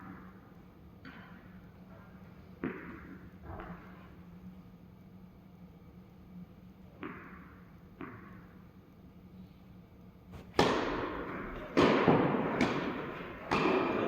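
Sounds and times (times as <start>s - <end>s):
tennis ball impacts with echo: 2.6s - 3.8s, 7.0s - 8.6s, 10.3s - 14.0s.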